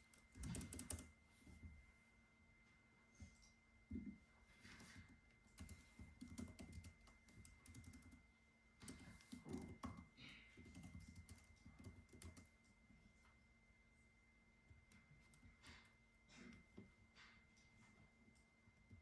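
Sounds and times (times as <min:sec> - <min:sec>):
typing on computer keyboard: 0:00.0 - 0:01.1, 0:04.8 - 0:08.2, 0:08.8 - 0:12.6.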